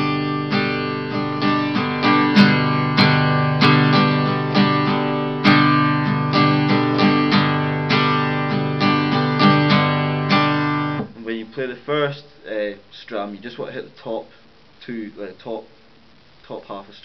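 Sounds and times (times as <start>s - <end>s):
guitar strumming: 0.0s - 11.2s.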